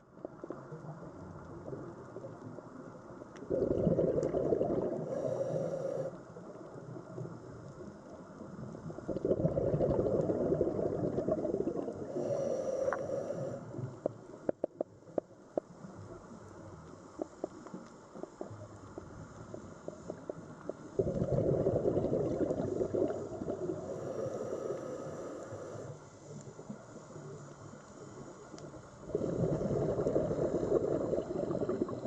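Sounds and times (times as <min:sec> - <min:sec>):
faint clicks: 0:00.1 - 0:03.5, 0:12.8 - 0:21.0, 0:24.7 - 0:29.0.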